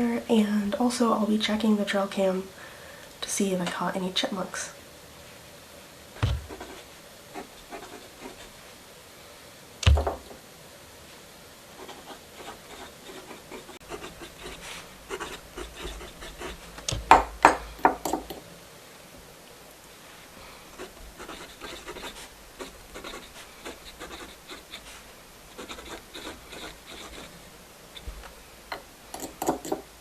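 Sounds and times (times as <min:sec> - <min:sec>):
thumps on wooden desk: 0:06.2 - 0:06.6, 0:09.8 - 0:10.3
pencil scratching on paper: 0:06.2 - 0:08.6, 0:11.8 - 0:16.7, 0:20.8 - 0:25.0, 0:25.6 - 0:27.4.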